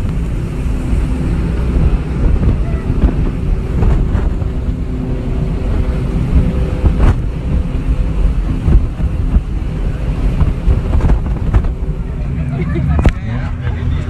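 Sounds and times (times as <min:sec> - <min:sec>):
boat engine droning: 0:00.0 - 0:14.0
wind buffeting microphone: 0:00.0 - 0:14.0.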